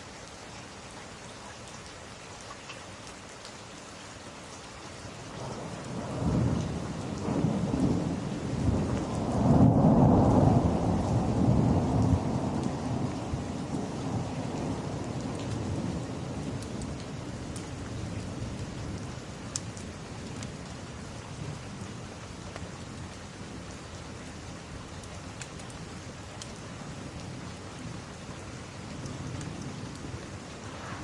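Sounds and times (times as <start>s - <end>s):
steady rain: 0.0s - 31.0s
thunder rolling: 6.0s - 14.9s, 29.2s - 31.0s.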